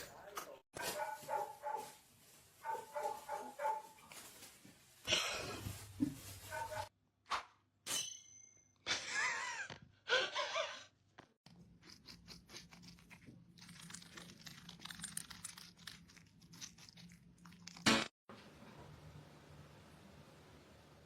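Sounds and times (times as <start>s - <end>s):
animal chewing food: 11.5s - 17.8s.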